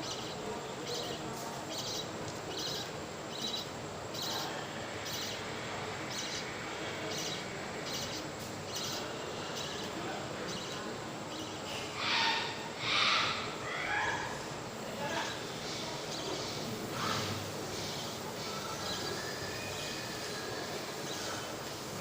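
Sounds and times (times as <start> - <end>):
budgerigar chicks chirping: 0.0 - 13.1.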